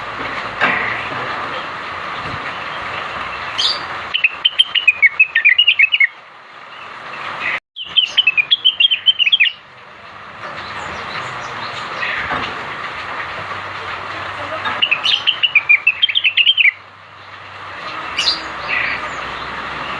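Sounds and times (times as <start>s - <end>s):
bird chirping: 2.7s - 9.7s, 14.7s - 19.9s.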